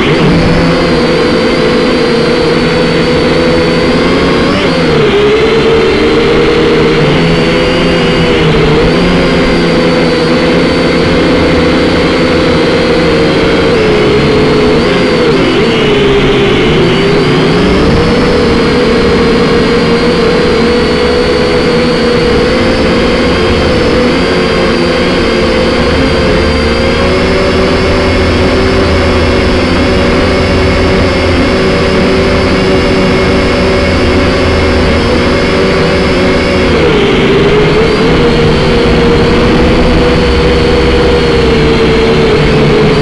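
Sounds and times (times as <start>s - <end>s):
drone propellers whining: 0.0s - 43.0s
wind rumbling on microphone: 13.4s - 43.0s.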